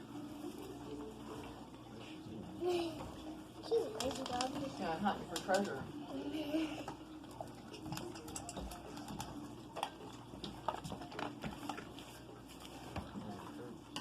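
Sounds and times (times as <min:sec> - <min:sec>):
dog eating dry food from bowl: 0:03.9 - 0:05.9, 0:07.3 - 0:14.0.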